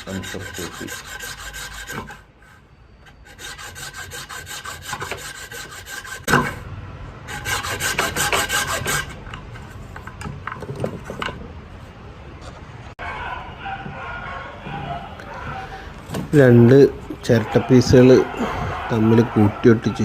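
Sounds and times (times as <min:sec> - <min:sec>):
coconut shell being rasped: 0:00.0 - 0:02.3, 0:03.1 - 0:06.6, 0:07.3 - 0:09.2.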